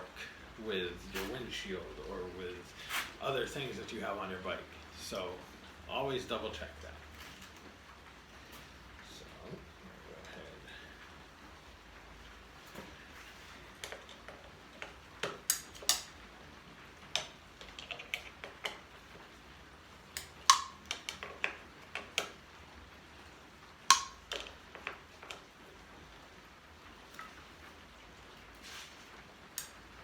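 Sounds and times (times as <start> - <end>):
pliers clicking on metal: 20.2 - 21.2, 29.6 - 29.8.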